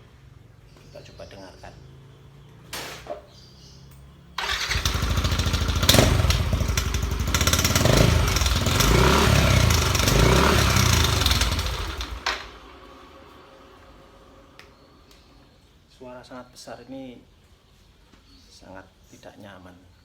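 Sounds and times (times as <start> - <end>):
scooter engine revving: 4.4 - 13.1.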